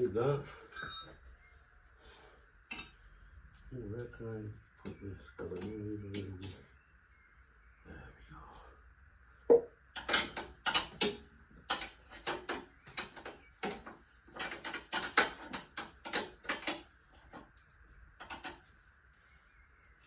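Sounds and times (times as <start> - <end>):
metal tools clinking and clanking: 0.6 - 1.2, 2.7 - 3.0, 10.0 - 16.8.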